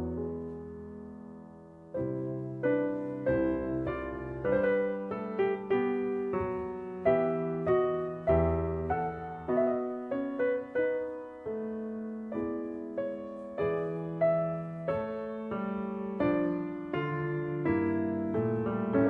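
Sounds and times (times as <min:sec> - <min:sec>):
slow solo piano: 0:00.0 - 0:19.0.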